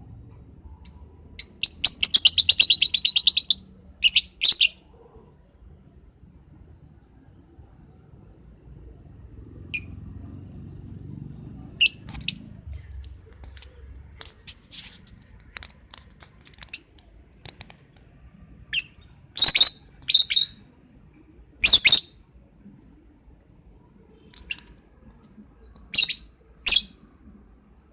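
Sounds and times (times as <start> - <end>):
lovebird shrill chirps: 0.8 - 4.8, 11.8 - 12.6, 18.7 - 20.6, 25.8 - 27.0.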